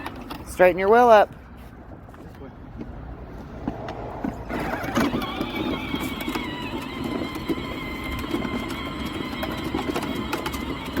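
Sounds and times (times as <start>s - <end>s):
plastic wheels rolling on ground: 4.2s - 11.0s
toy tractor motor whining: 4.4s - 11.0s.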